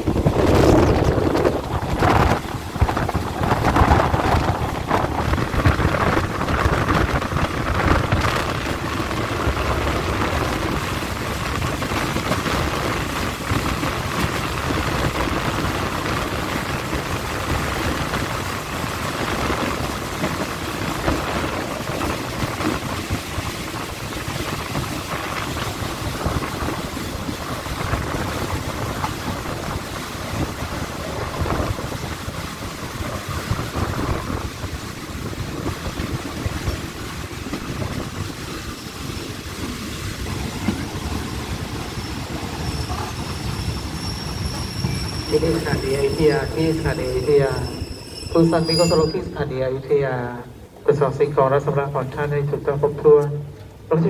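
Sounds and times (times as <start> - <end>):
train wheels on rails: 0.0 - 49.9.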